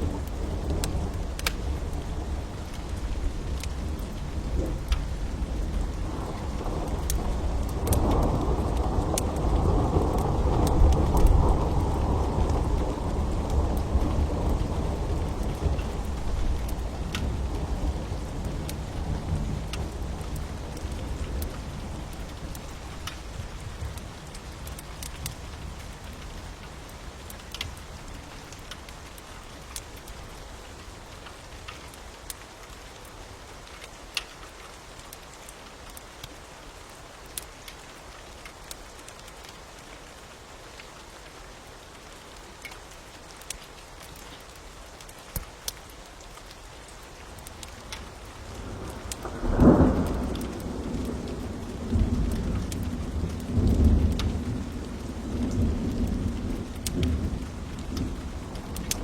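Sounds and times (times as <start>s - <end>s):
thunder rumbling: 0.0s - 27.3s, 48.0s - 59.0s
steady rain: 0.0s - 59.0s
wood fire crackling: 0.0s - 59.0s.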